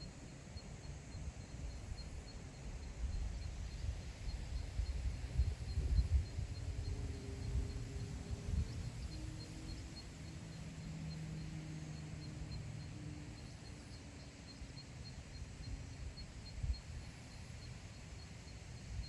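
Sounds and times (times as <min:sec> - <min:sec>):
wind rumbling on microphone: 0:01.4 - 0:11.6, 0:15.2 - 0:19.0.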